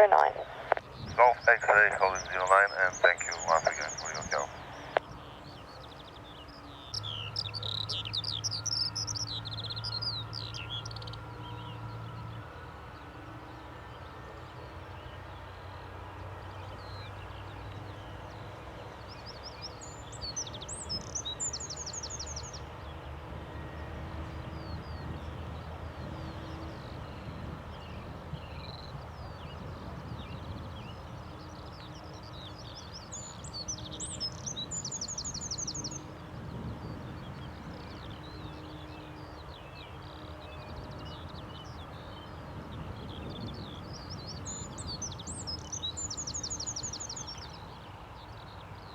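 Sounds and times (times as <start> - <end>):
steady low rumble: 0.0 - 5.0
faint hum: 0.0 - 5.2
songbird singing with trill: 0.9 - 48.9.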